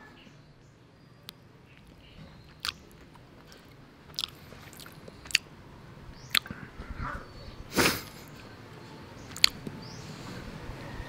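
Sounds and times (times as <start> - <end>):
person chewing soft fruit: 1.3 - 5.6, 6.2 - 6.6, 9.3 - 9.7
wet mouth smacks: 2.5 - 2.9, 3.5 - 5.5, 6.3 - 6.5, 9.3 - 9.6.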